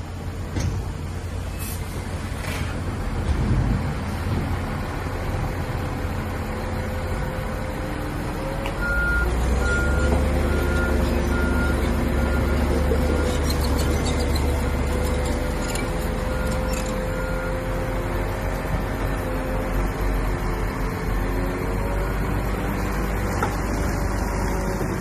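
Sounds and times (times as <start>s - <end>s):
diesel machinery rumbling: 0.0s - 25.0s
reversing alarm beeping: 8.8s - 13.4s.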